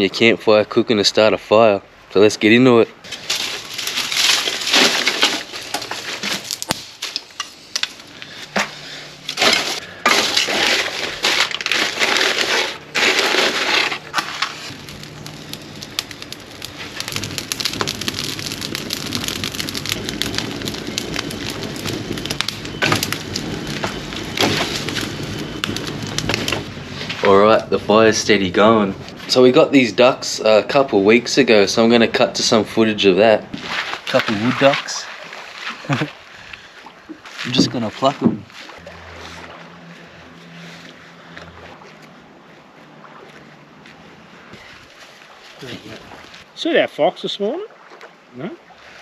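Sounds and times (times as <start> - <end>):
fire crackling: 3.0 - 46.7
sticks snapping and crunching: 3.1 - 26.7.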